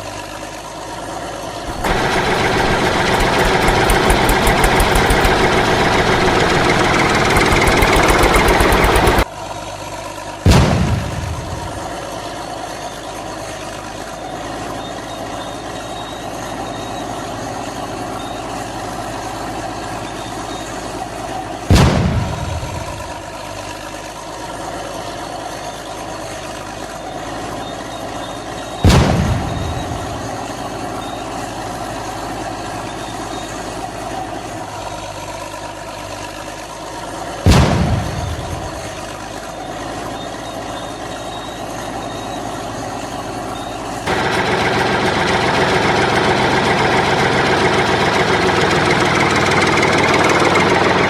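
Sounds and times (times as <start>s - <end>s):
engine idling: 0.0s - 51.0s
loud thump: 10.5s - 12.1s, 21.7s - 23.2s, 28.9s - 30.4s, 37.5s - 39.1s
low rumble: 10.5s - 12.1s.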